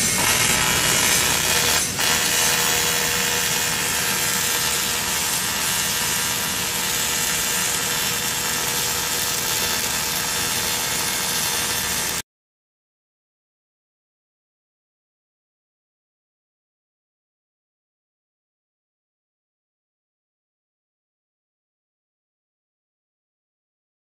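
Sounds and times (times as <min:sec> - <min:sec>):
welding hiss: 0:00.0 - 0:12.2.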